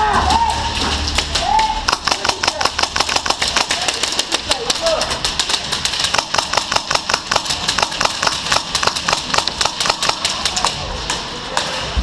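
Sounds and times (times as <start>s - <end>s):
airsoft gun firing rapid shots: 1.9s - 10.9s.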